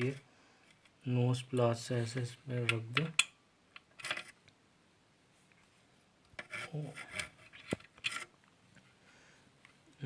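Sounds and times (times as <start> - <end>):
screw scraping against metal: 6.4 - 8.3.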